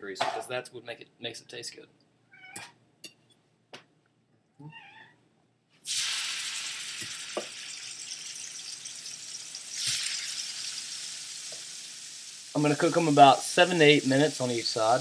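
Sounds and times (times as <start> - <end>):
chicken sizzling in grease: 5.9 - 15.0.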